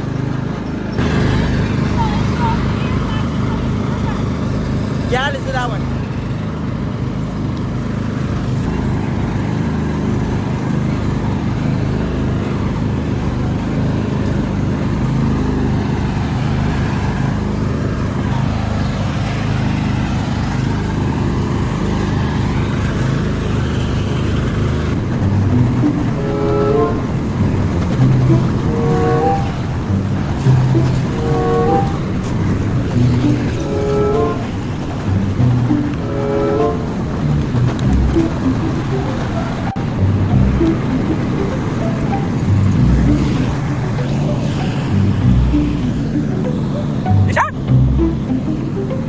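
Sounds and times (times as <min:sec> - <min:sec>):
tractor engine rumbling: 0:00.0 - 0:49.0
short pitched toots: 0:25.3 - 0:49.0.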